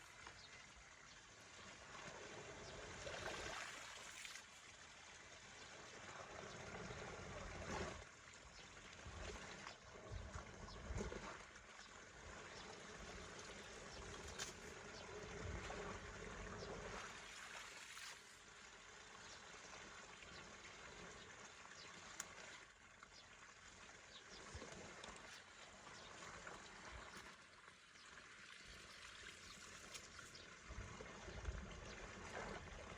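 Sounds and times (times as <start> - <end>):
water trickling: 11.5 - 32.9.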